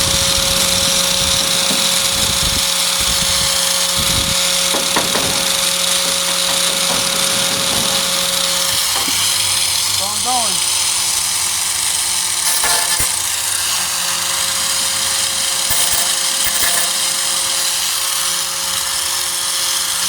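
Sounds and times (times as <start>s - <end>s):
angle grinder running: 0.0s - 20.0s
knocks: 1.2s - 9.9s.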